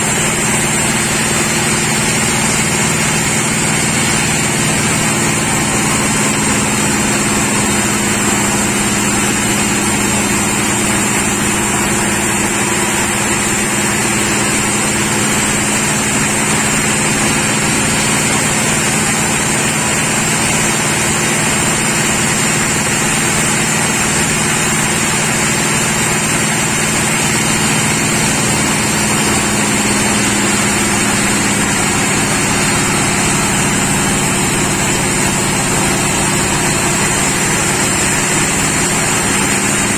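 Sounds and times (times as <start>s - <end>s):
sawmill machinery hum: 0.0s - 39.9s.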